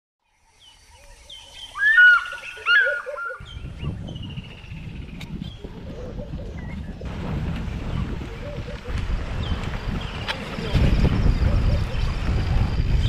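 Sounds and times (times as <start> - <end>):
birds calling and singing: 0.2 - 13.0
low rumbling noise: 3.4 - 13.0.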